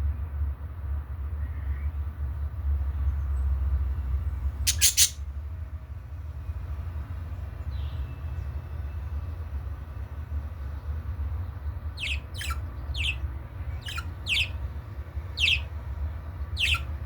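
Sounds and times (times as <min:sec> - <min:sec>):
budgerigars chirping: 0:04.7 - 0:05.2, 0:11.9 - 0:17.0.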